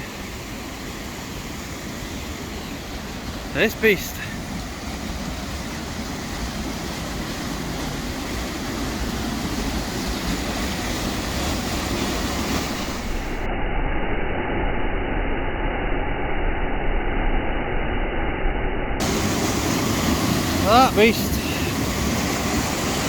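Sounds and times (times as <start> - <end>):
waterfall rushing: 0.1 - 13.2, 19.0 - 23.0.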